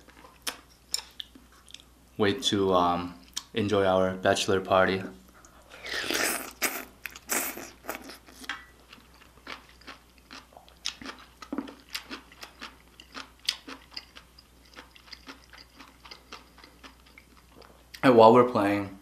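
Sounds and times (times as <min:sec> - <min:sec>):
close-miked chewing: 0:05.4 - 0:18.0.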